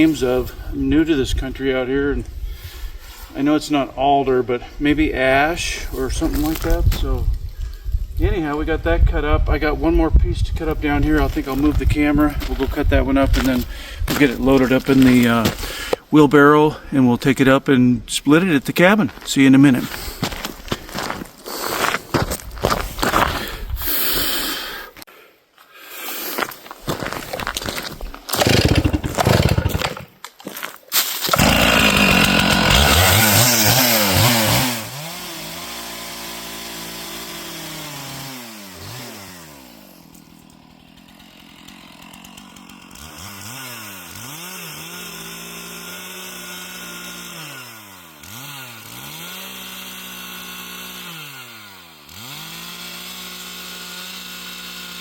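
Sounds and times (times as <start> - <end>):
chainsaw cutting a log: 6.0 - 9.3, 10.8 - 16.0, 27.0 - 30.2, 31.2 - 55.0.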